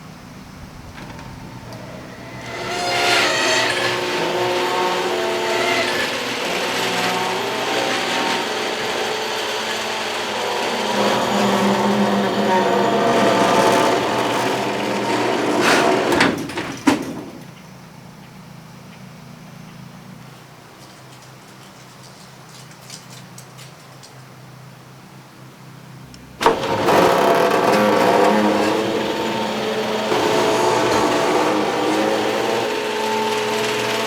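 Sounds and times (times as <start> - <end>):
garage door rattling on track: 0.6 - 17.7, 26.4 - 34.0
garage door clunks: 0.8 - 17.6, 26.4 - 34.0.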